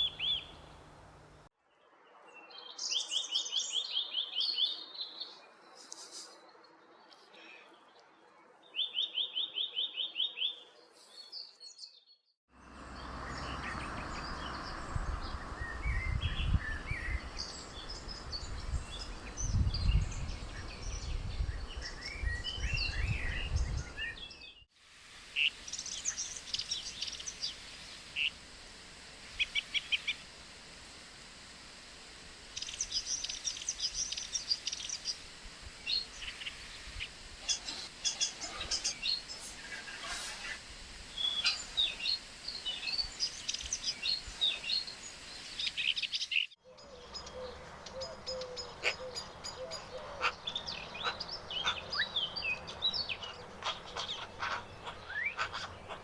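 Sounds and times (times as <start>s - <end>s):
birds chirping and trilling: 12.6s - 24.6s, 25.2s - 56.0s.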